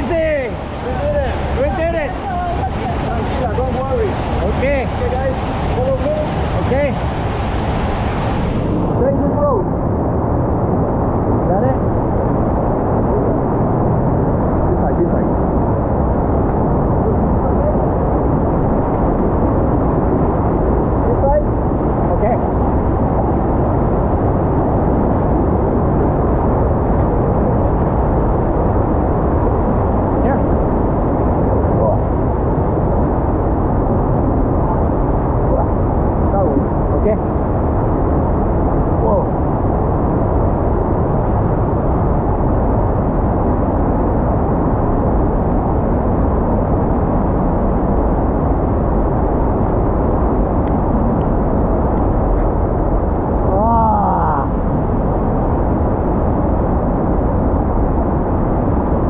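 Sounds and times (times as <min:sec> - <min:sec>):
waterfall roaring: 0:00.0 - 0:09.4.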